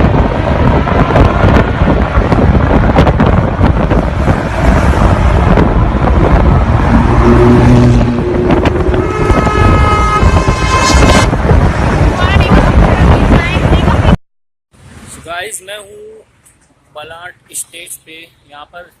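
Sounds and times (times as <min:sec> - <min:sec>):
wind buffeting microphone: 0:00.0 - 0:14.2
road traffic: 0:00.0 - 0:19.0.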